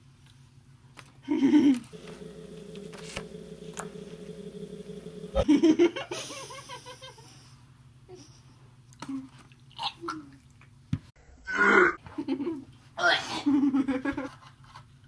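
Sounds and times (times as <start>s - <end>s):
steady low hum: 1.9s - 7.5s.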